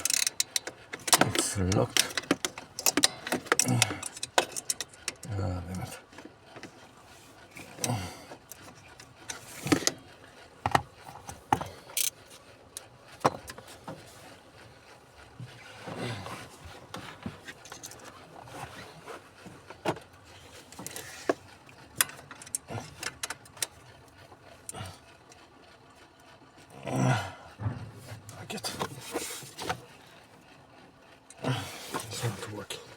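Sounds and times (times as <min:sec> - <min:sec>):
hand tools clicking on metal: 0:00.0 - 0:05.3, 0:11.6 - 0:12.2.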